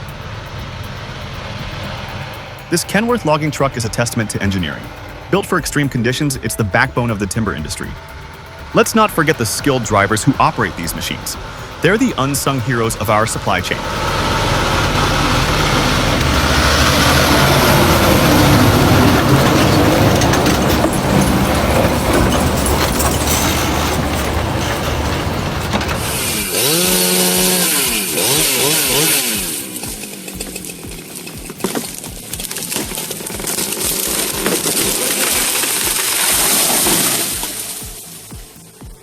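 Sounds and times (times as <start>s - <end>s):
chainsaw cutting wood: 9.7s - 38.6s.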